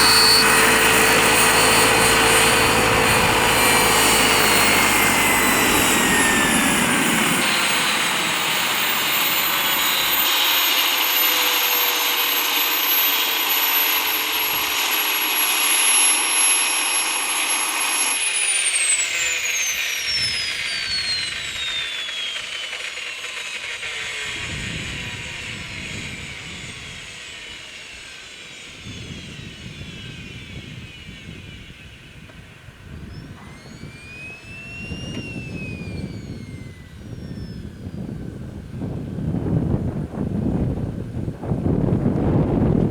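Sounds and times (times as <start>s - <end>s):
turbine engine whining: 0.0s - 42.9s.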